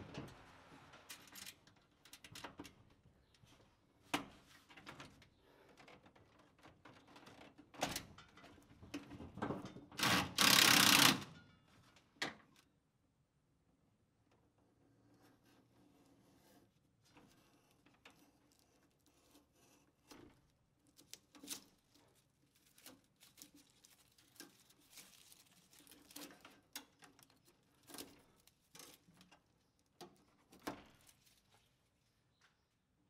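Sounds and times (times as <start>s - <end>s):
wires clicking and rustling: 17.1s - 31.8s.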